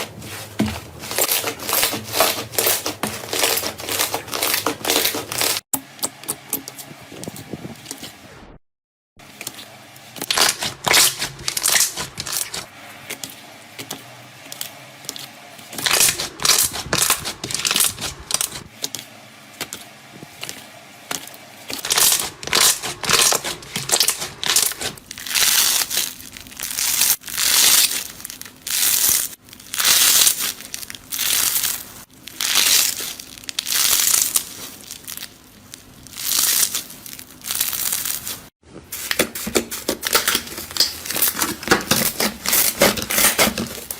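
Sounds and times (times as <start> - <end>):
crunchy material crushed by hand: 0.0 - 5.6, 10.2 - 12.7, 15.8 - 18.7, 21.7 - 43.9.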